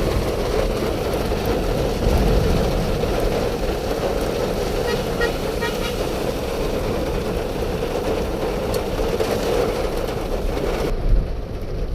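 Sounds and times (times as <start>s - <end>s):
car engine and road noise: 0.0s - 11.9s.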